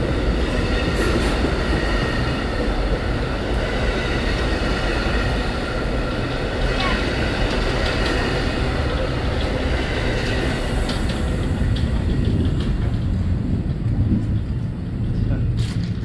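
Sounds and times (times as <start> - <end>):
railcars rumbling by: 0.0 - 16.0
train wheel clicks: 7.4 - 16.0.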